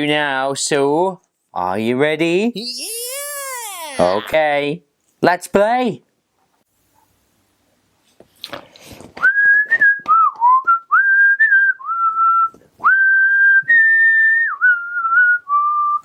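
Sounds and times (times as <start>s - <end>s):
person whistling a slow tune: 9.2s - 16.0s.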